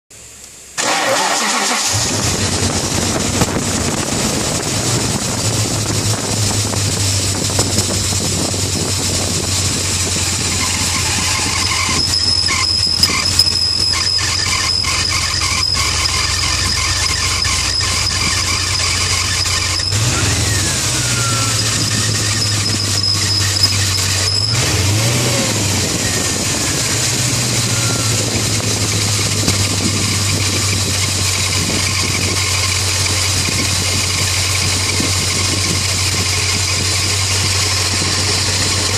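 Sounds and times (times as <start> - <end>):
car engine starting and idling: 0.1 - 38.9
high-pitched bearing squeal: 10.0 - 33.2.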